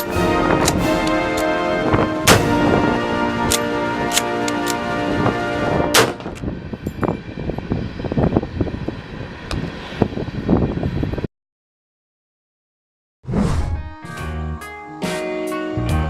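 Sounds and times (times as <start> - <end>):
music: 0.0 - 6.5, 13.6 - 16.0.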